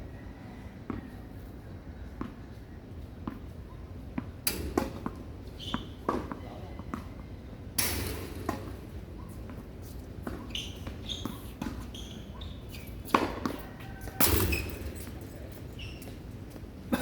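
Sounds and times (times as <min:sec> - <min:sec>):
shoes squeaking on court: 0:00.9 - 0:07.2, 0:08.0 - 0:16.9
tennis ball bouncing on court: 0:04.2 - 0:07.1, 0:08.1 - 0:12.0, 0:13.1 - 0:13.6.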